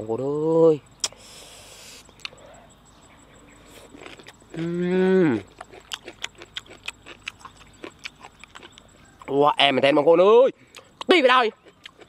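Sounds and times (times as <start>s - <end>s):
wet mouth clicks: 1.0s - 1.2s, 2.2s - 2.4s
crunchy chewing close-up: 1.0s - 12.0s
low voiced call: 4.5s - 5.5s.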